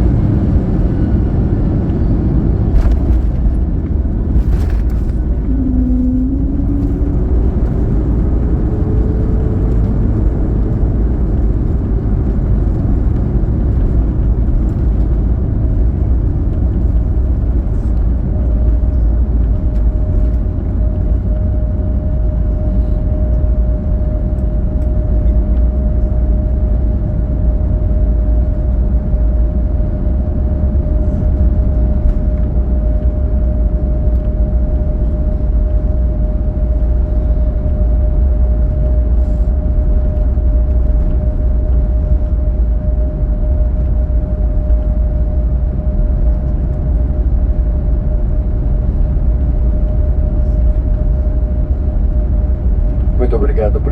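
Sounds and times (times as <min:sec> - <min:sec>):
engine tone rising: 0:00.0 - 0:12.4
engine and airflow rumble: 0:00.0 - 0:53.9
steady whine: 0:00.0 - 0:53.9.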